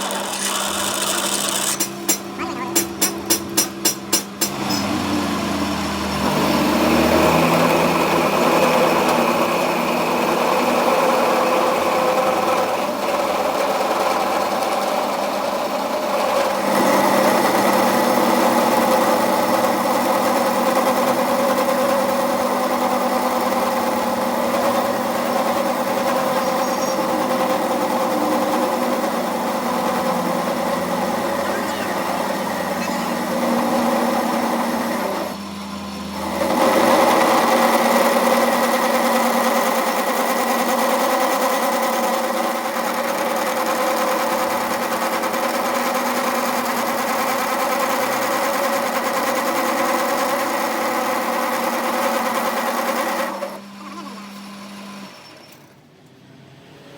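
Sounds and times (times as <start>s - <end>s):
machine motor whining: 0.0s - 3.6s, 23.2s - 39.0s.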